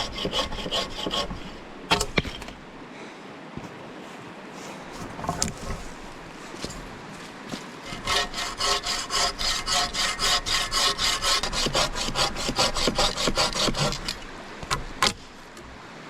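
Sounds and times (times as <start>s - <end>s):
bow saw cutting wood: 0.0s - 2.6s, 7.8s - 15.4s.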